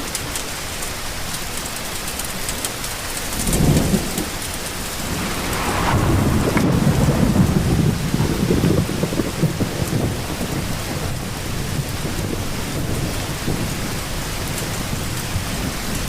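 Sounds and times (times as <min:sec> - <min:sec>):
steady rain: 0:00.0 - 0:16.0
thunder rumbling: 0:03.3 - 0:16.0.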